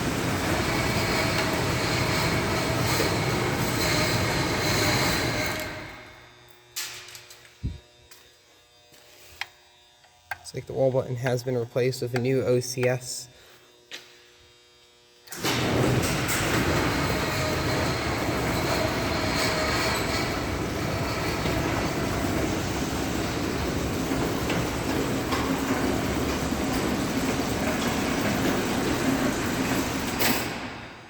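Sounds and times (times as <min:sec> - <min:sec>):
garage door opener rumbling: 0:00.0 - 0:07.7, 0:15.3 - 0:31.0.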